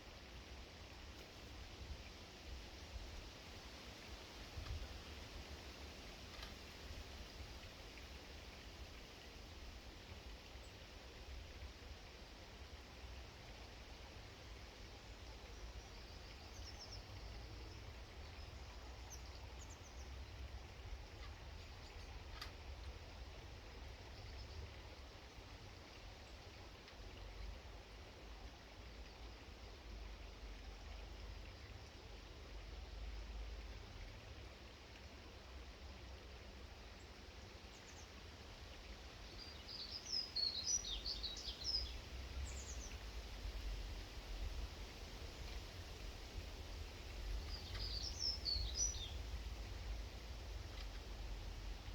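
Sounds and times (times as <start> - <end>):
small birds chirping: 39.2 - 43.6, 46.9 - 51.1.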